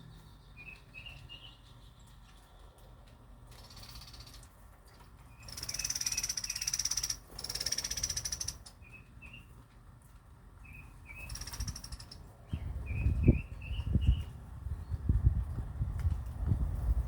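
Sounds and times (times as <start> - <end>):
bird chirps: 0.0 - 2.2, 5.3 - 9.5, 10.6 - 15.0
small birds trilling: 3.5 - 4.6, 5.2 - 9.6, 10.6 - 15.1.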